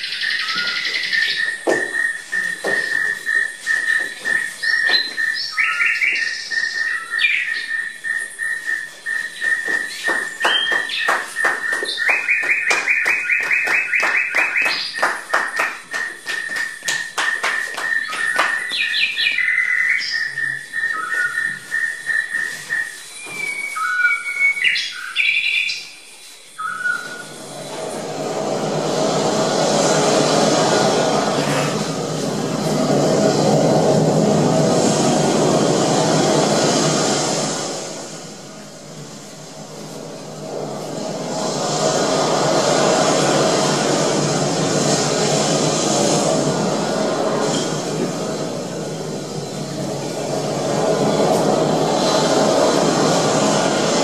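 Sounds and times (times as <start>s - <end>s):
whistling and chirping calls: 0.0s - 27.6s
steady high whistling tone: 0.0s - 54.0s
broad rushing sound: 9.1s - 19.3s, 26.9s - 54.0s.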